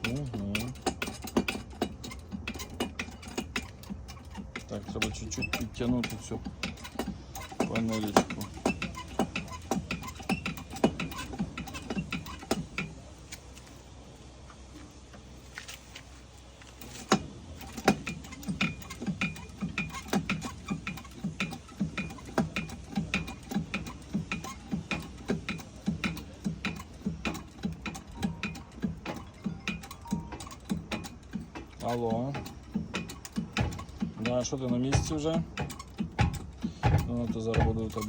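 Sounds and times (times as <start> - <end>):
ratcheting tool clicking: 16.8 - 38.0.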